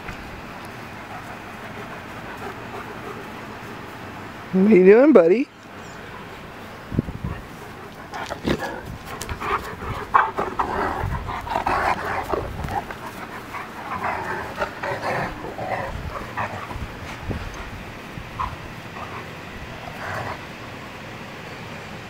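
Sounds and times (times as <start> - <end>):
rough dog noises: 0.8 - 4.2, 7.1 - 20.5
dogs panting: 0.8 - 4.3, 7.2 - 20.6.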